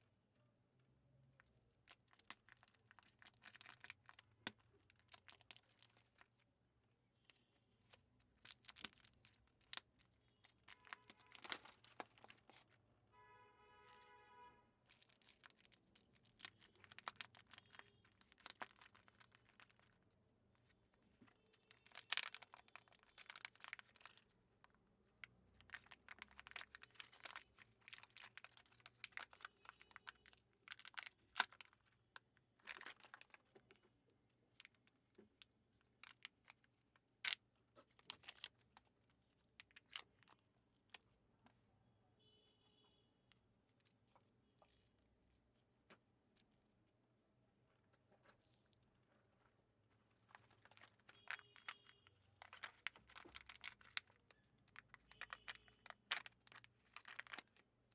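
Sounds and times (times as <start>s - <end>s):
plastic packaging clicks and snaps: 1.8s - 6.3s, 7.3s - 12.7s, 14.9s - 20.0s, 21.6s - 33.8s, 34.6s - 41.1s, 50.2s - 57.9s
foil wrappers crinkling and tearing: 1.9s - 6.4s, 7.8s - 12.8s, 14.9s - 20.8s, 21.5s - 33.6s, 50.2s - 57.6s.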